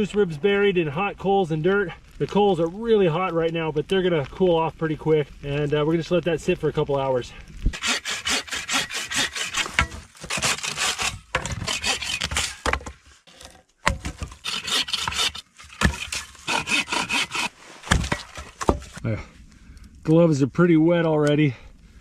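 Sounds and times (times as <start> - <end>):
rasping strokes: 7.8 - 12.7, 14.2 - 19.0.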